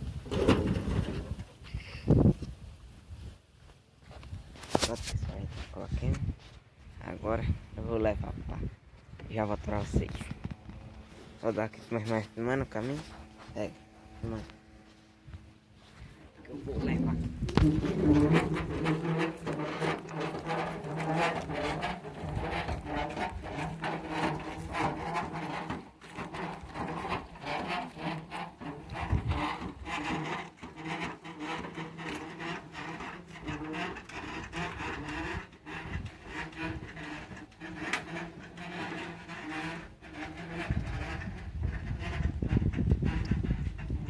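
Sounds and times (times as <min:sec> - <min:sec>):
cart wheel rubbing and knocking: 0:00.0 - 0:01.6, 0:15.8 - 0:44.0.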